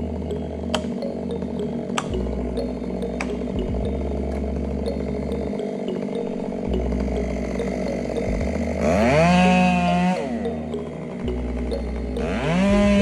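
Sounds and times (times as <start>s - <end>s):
chainsaw running and revving: 2.5s - 10.5s, 11.3s - 13.0s.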